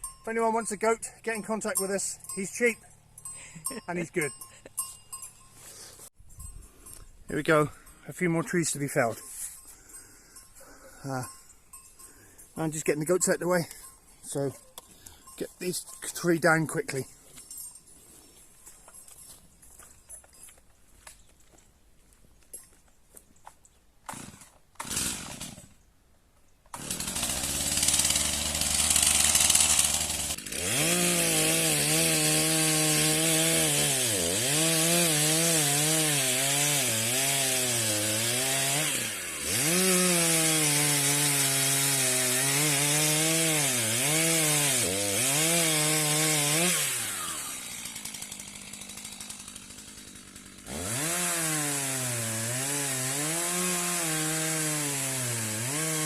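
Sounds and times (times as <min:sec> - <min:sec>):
chainsaw cutting wood: 0:24.0 - 0:25.8, 0:26.7 - 0:56.0.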